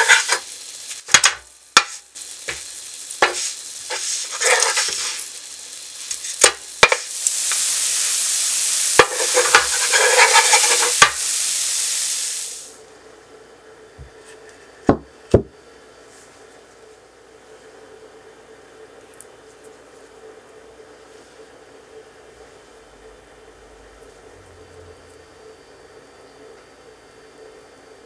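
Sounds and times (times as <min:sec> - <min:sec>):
pancakes sizzling in oil: 0:00.0 - 0:12.8.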